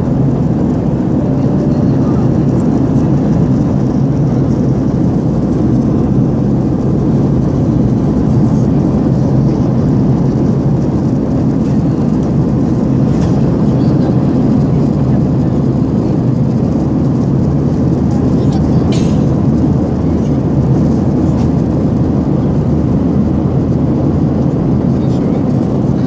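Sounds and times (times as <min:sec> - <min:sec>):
airliner cabin engine noise: 0:00.0 - 0:26.0.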